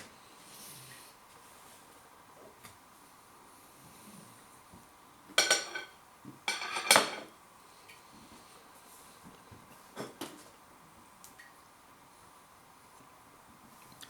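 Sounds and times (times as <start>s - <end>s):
cutlery clinking on crockery: 5.4s - 7.3s.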